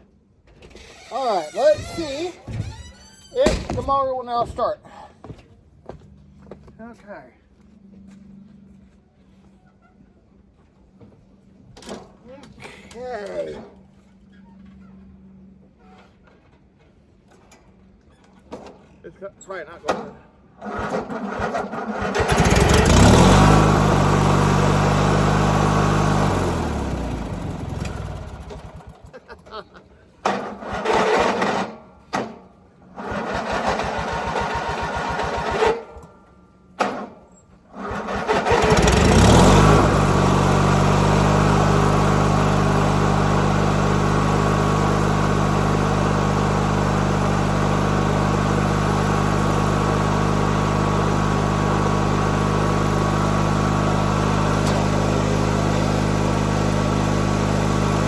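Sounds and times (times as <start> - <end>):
riding mower engine starting and running: 0.5 - 3.6, 20.6 - 58.0.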